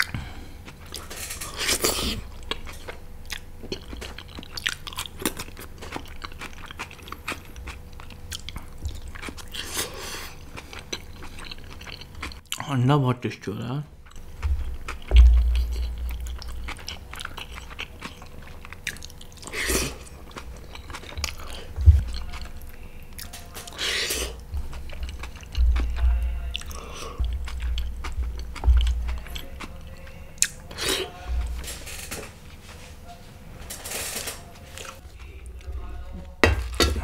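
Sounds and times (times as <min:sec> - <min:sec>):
person chewing: 0:00.0 - 0:12.6, 0:14.0 - 0:32.5, 0:34.0 - 0:37.0
low jaw thumps: 0:14.2 - 0:16.9, 0:21.7 - 0:22.2, 0:24.5 - 0:29.4.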